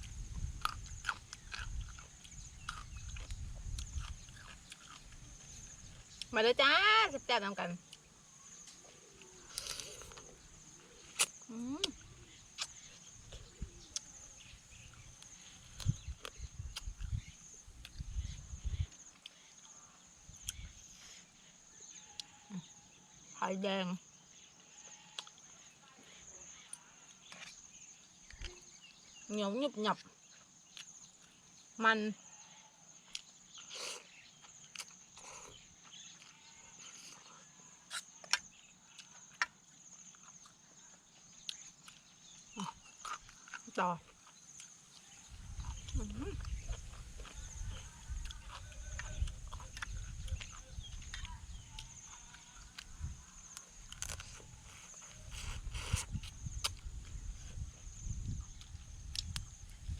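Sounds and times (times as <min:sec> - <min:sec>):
insects trilling: 0:00.0 - 0:59.9
crab shell cracking: 0:53.9 - 0:54.4.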